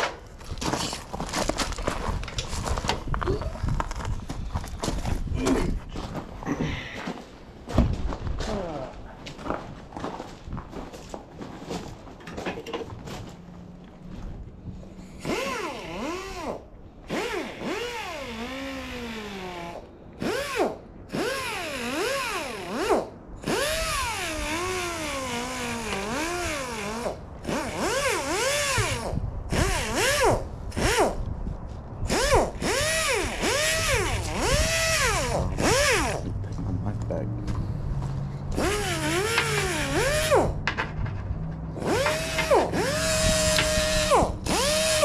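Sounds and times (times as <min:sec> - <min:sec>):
cordless drill motor whine: 0:15.2 - 0:31.2, 0:32.0 - 0:36.3, 0:38.5 - 0:40.6, 0:41.8 - 0:45.0.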